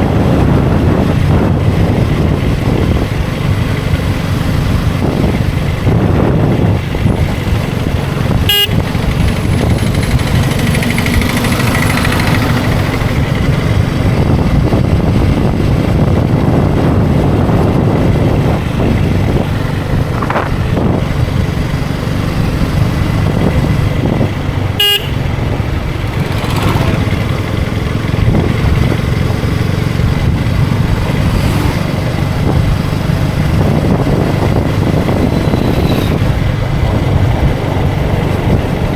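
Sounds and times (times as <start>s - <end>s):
motorcycle engine running: 0.0s - 38.9s
wind rushing over microphone: 0.0s - 38.9s
faint traffic horns: 8.4s - 8.9s, 24.8s - 25.5s.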